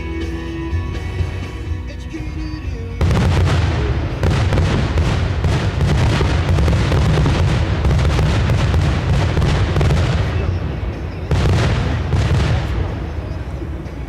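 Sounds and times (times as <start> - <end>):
fireworks booming and crackling: 2.9 - 14.0.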